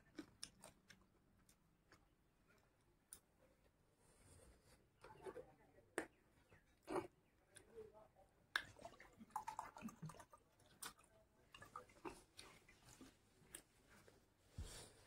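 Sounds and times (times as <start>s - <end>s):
close chewing with lip smacks: 0.0s - 3.4s, 9.8s - 13.8s.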